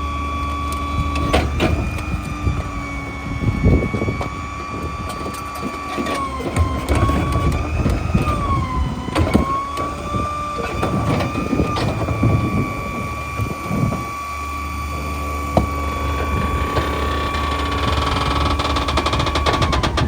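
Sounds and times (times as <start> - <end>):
diesel engine running: 0.0 - 20.0
hydraulic whine: 0.0 - 20.0
metal knocks and clanks: 15.6 - 20.0.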